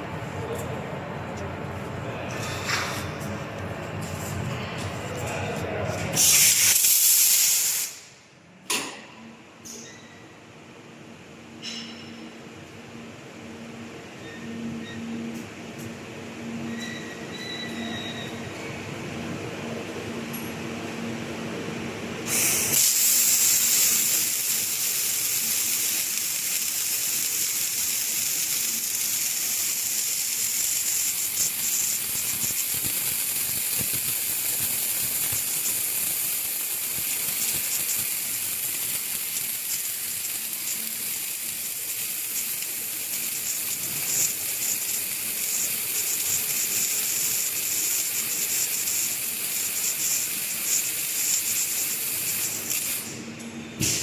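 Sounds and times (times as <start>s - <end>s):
welding arcs crackling hiss: 6.0s - 8.3s, 22.2s - 54.0s.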